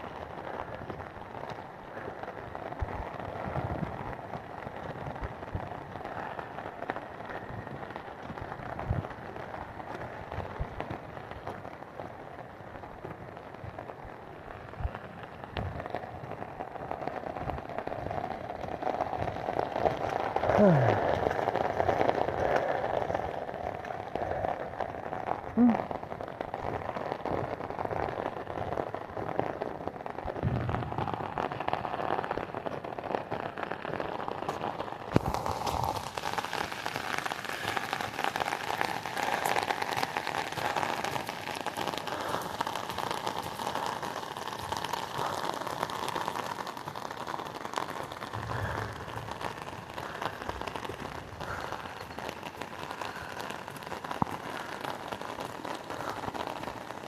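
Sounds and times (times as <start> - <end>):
hissing water: 18.8 - 26.0, 34.5 - 57.0.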